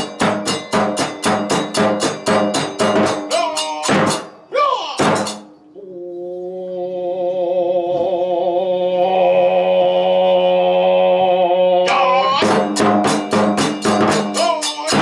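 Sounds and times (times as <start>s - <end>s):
fast drum strikes: 0.0s - 5.5s, 11.9s - 15.0s
cymbal strikes: 0.0s - 5.6s, 12.5s - 15.0s.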